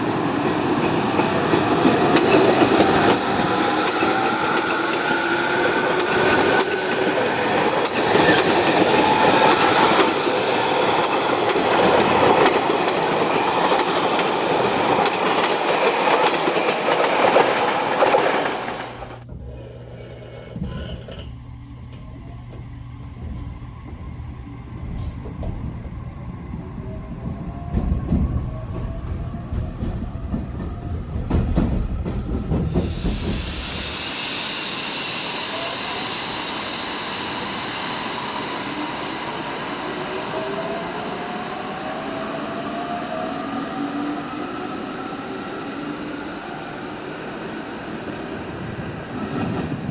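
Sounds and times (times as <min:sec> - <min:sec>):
train wheels rumbling on rail: 0:00.0 - 0:19.3, 0:22.3 - 0:49.9
electric train motor whine rising: 0:00.9 - 0:19.2, 0:32.7 - 0:49.9.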